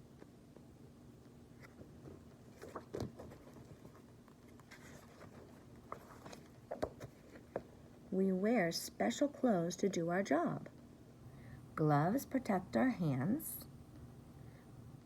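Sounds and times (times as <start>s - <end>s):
book pages rustling: 1.5s - 7.8s.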